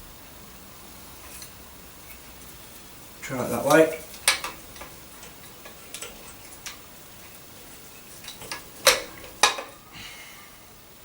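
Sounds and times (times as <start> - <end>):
vacuum cleaner parts clicking: 3.5 - 9.8.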